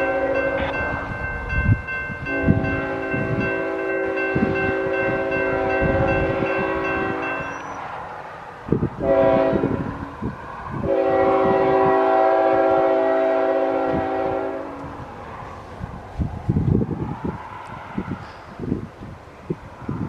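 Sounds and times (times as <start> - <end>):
locomotive air horn blasts: 0.0 - 1.0, 2.2 - 7.7, 9.0 - 10.1, 10.8 - 14.9.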